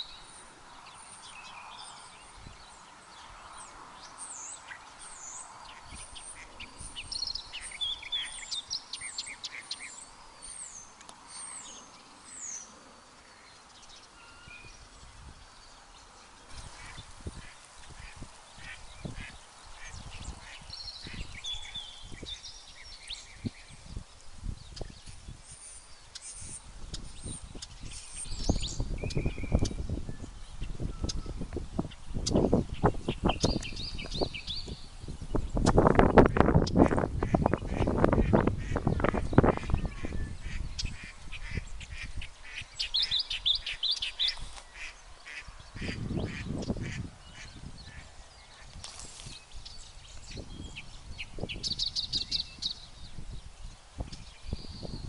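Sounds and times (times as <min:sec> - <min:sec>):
wind rumble on microphone: 0:00.0 - 0:10.0, 0:13.8 - 0:55.0
birds calling: 0:00.0 - 0:55.0.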